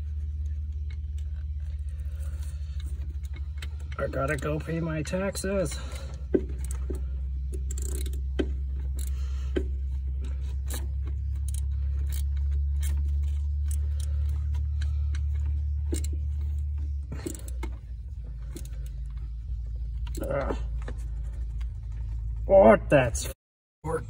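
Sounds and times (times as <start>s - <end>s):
metallic clicks and scrapes: 0.0s - 22.4s
car engine idling: 0.0s - 23.3s.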